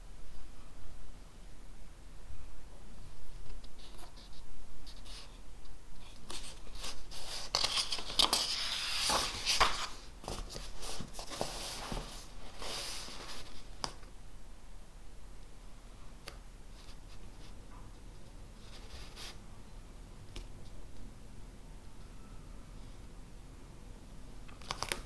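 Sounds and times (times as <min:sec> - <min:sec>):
paper rustling: 0:06.0 - 0:14.0, 0:24.6 - 0:25.0.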